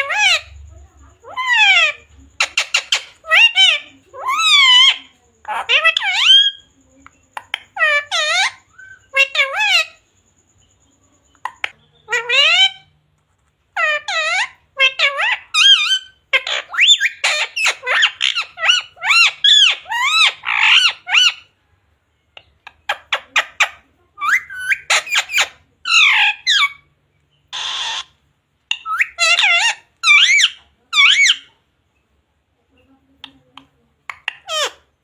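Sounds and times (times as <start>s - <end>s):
parakeet squawking and chattering: 0.0s - 21.6s, 22.2s - 31.8s, 32.8s - 35.0s
parakeet harsh hissing screech: 27.5s - 28.1s.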